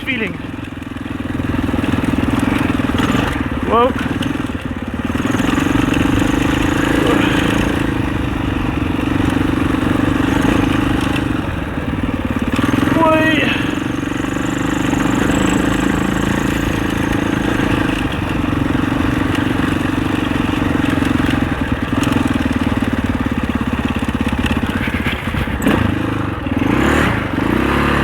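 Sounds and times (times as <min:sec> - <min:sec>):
dirt bike engine running: 0:00.0 - 0:28.0.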